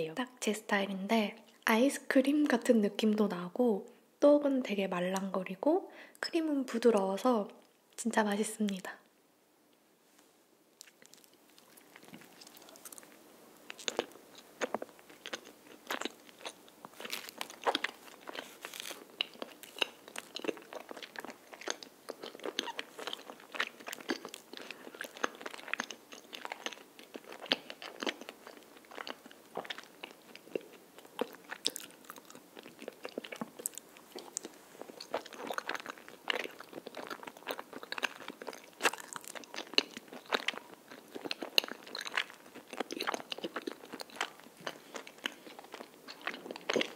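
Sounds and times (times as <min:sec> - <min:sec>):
chewing with mouth clicks: 0:10.8 - 0:46.9.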